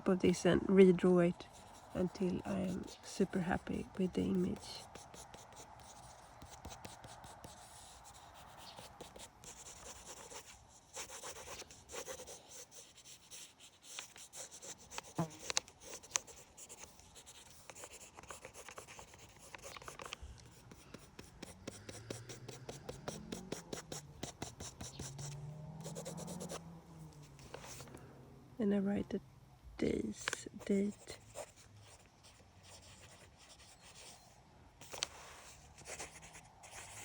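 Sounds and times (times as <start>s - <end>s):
pencil drawing strokes on paper: 0.3s - 26.6s, 30.2s - 37.0s.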